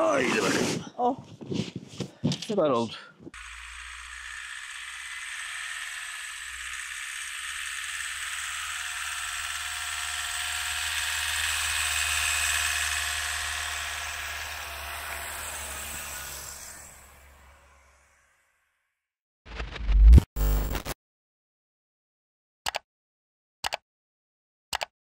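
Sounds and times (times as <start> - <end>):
small electric motor whirring: 3.3 - 18.4.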